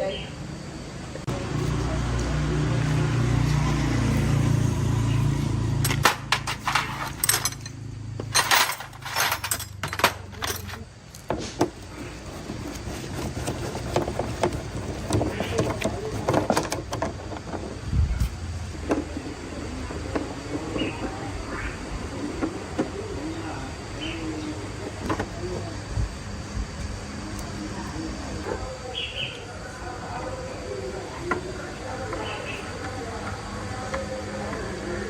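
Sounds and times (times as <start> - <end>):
small motorbike engine running: 1.3 - 6.0, 12.0 - 23.2
metal tools clinking and rattling: 5.8 - 11.3.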